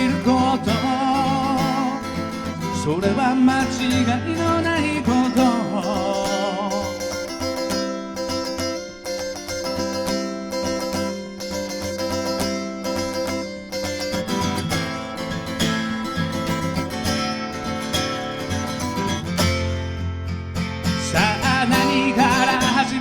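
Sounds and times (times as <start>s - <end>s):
person singing: 0.0s - 7.6s, 21.0s - 23.0s
acoustic guitar playing: 0.0s - 23.0s.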